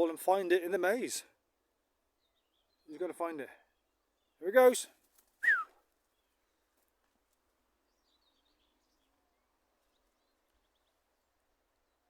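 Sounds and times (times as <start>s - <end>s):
faint bird chirps: 5.4s - 6.7s.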